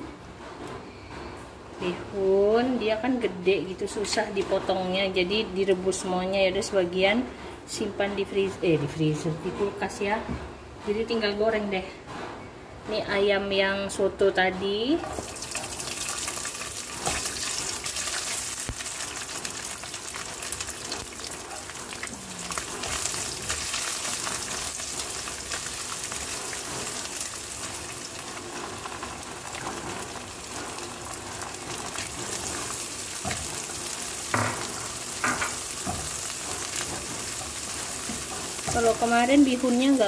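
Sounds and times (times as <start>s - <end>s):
chicken sizzling in hot oil: 15.2s - 40.0s.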